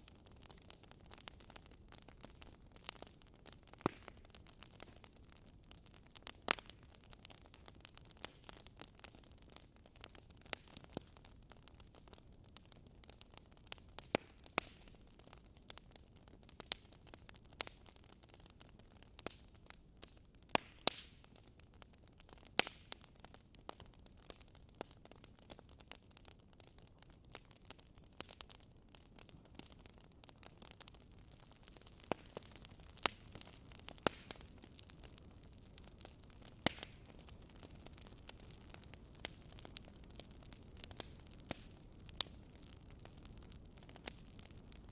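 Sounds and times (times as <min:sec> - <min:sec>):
faint steady hiss: 0:00.0 - 0:44.9
wood fire crackling: 0:00.0 - 0:44.9.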